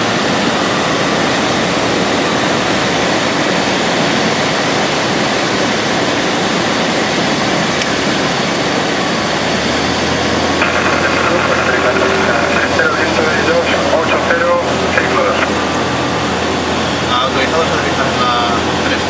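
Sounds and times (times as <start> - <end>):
aircraft engine and propeller: 0.0 - 19.0
low steady hum: 10.1 - 19.0.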